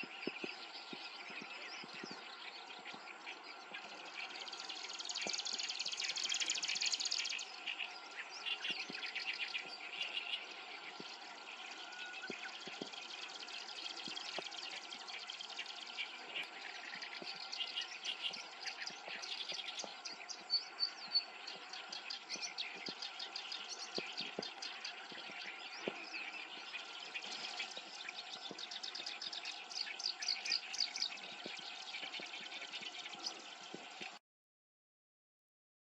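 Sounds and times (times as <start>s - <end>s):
warbler singing chattering notes: 0.0s - 34.2s.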